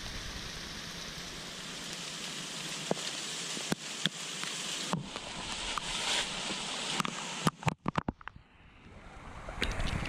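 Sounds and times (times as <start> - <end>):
heavy rain falling: 0.0 - 7.8.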